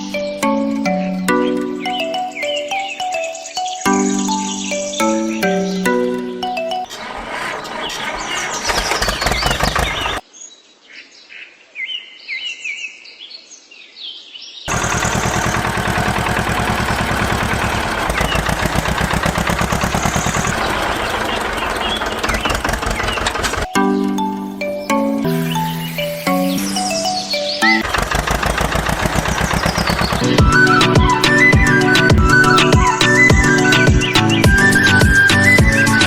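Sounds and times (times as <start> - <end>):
birds chirping: 0.0 - 13.5, 14.6 - 36.0
engine running: 6.9 - 10.2, 14.7 - 24.5, 27.8 - 36.0.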